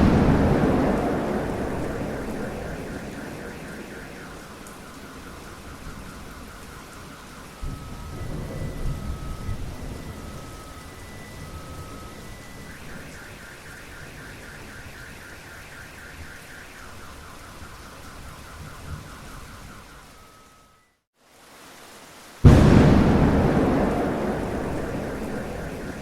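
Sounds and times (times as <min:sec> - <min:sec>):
thunder rumble: 0:00.0 - 0:13.6, 0:22.4 - 0:26.0
car alarm: 0:00.0 - 0:21.0, 0:22.5 - 0:26.0
steady rain: 0:00.0 - 0:26.0.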